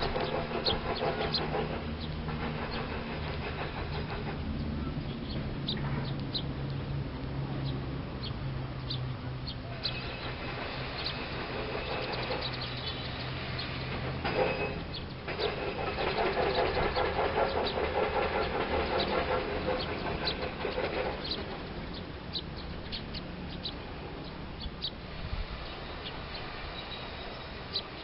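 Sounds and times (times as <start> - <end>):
rapid rattling: 0.0 - 4.5, 9.9 - 22.1
steady low rumble: 0.0 - 14.2
wild birds chirping: 0.0 - 28.0.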